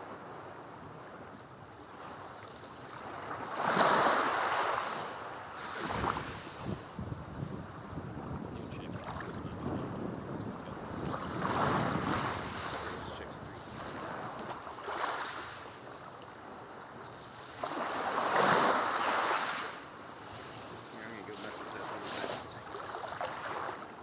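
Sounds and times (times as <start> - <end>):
sea waves breaking: 0.0 - 24.0
wind buffeting microphone: 5.5 - 19.0.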